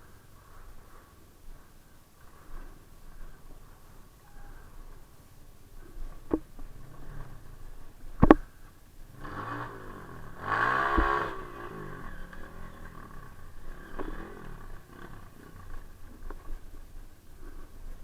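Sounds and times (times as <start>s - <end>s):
motorcycle engine revving: 6.6s - 16.8s.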